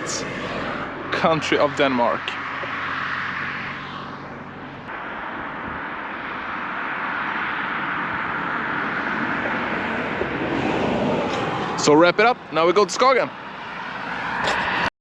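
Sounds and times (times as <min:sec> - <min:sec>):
vehicle rushing noise: 0:00.0 - 0:14.9.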